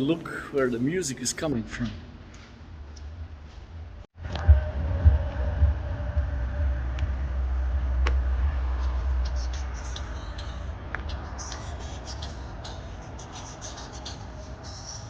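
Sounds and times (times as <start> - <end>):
low rumble: 2.7 - 13.2.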